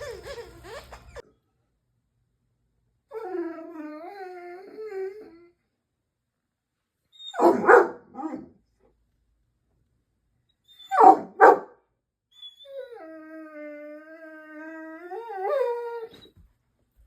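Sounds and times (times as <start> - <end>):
puppy barking: 7.3 - 8.5, 10.9 - 11.8.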